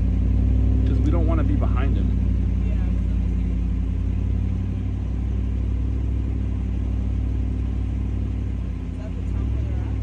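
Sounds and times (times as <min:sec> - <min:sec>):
pickup truck engine running: 0:00.0 - 0:10.0.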